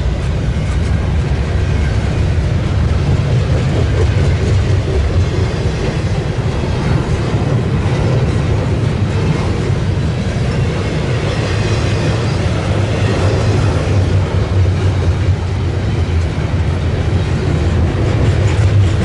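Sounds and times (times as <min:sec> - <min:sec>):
freight train passing: 0:00.0 - 0:19.0.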